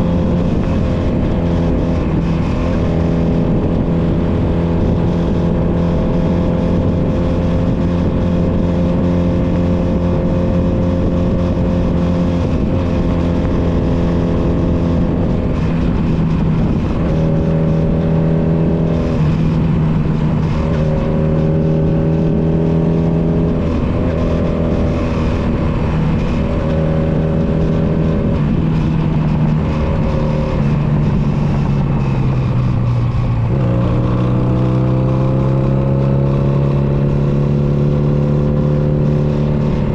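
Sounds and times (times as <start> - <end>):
motorcycle engine running: 0.0 - 39.9
wind rush: 0.0 - 39.9.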